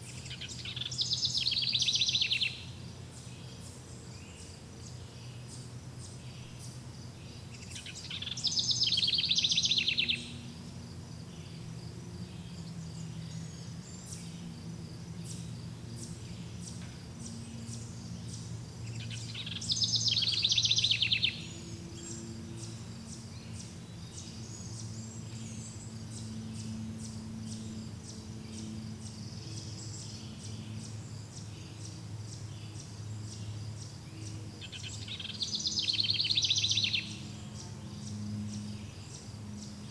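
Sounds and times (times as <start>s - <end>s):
songbird trilling: 0.0s - 3.7s, 7.4s - 10.5s, 15.2s - 39.7s.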